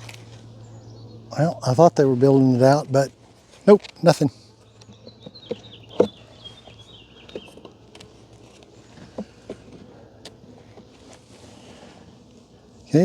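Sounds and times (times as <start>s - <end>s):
bird singing: 0.0s - 13.0s
wooden beehive frames knocking: 4.6s - 11.2s.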